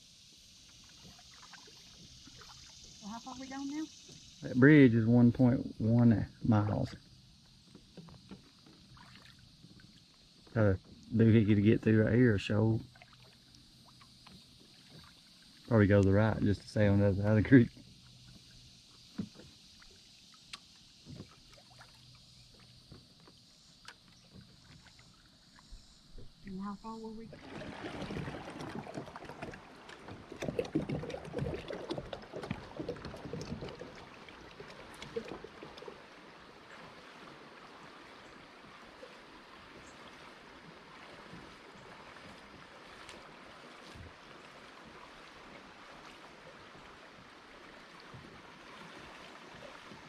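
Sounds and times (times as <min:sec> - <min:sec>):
faint steady hiss: 0:00.0 - 0:27.3
small water splashes: 0:00.0 - 0:50.0
river water rushing: 0:27.3 - 0:50.0.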